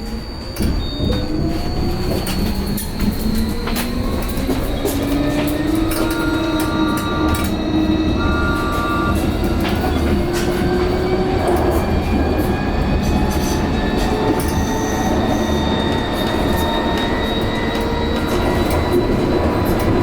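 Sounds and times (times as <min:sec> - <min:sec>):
tram rumble with motor whine: 0:00.0 - 0:20.0
high squealing tones: 0:03.0 - 0:09.4.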